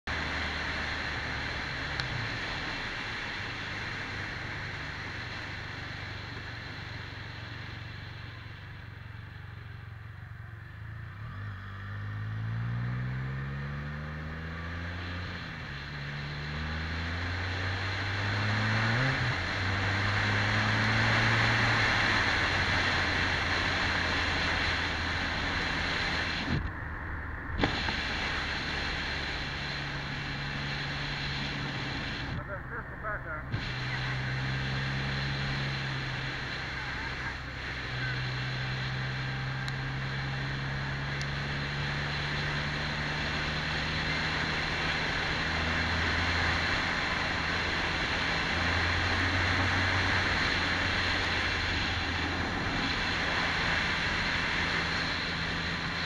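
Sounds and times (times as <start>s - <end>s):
motorcycle engine running: 0.0s - 56.0s
wind rushing over microphone: 17.4s - 32.8s.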